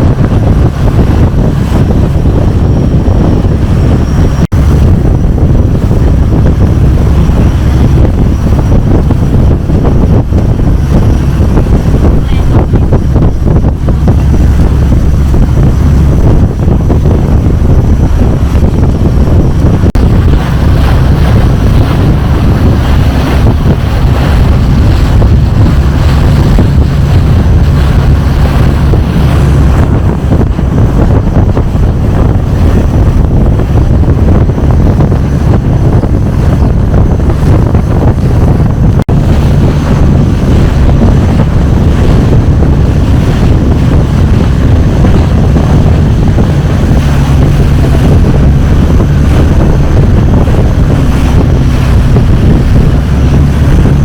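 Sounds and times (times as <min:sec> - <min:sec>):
boat engine running: 0:00.0 - 0:54.0
wind buffeting microphone: 0:00.0 - 0:54.0.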